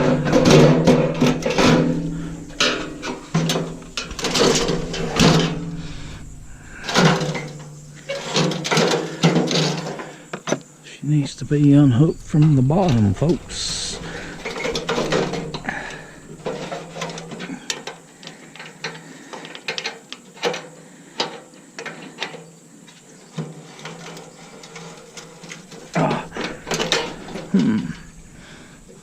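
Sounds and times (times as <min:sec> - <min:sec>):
metal clatter: 0:00.0 - 0:10.2, 0:11.3 - 0:17.7, 0:24.6 - 0:29.0.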